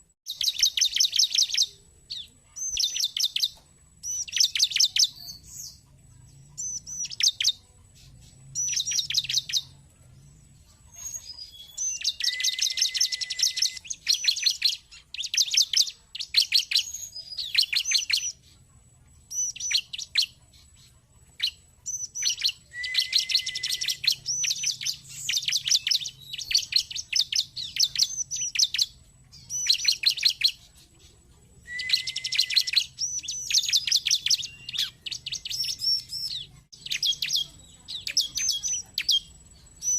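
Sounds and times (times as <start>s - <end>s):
bird chattering song: 0.0s - 39.9s
low bird whistle: 11.8s - 18.3s, 22.0s - 28.9s, 31.7s - 37.4s.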